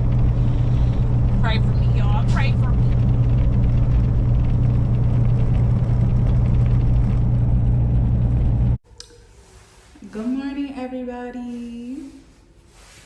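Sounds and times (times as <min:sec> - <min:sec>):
road noise: 0:00.0 - 0:08.8
truck engine humming: 0:00.0 - 0:08.8.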